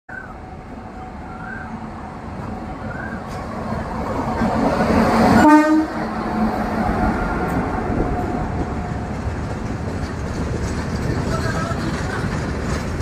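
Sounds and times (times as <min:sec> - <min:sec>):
train rumbling past: 0:00.1 - 0:13.0
train horn blast: 0:05.3 - 0:06.5.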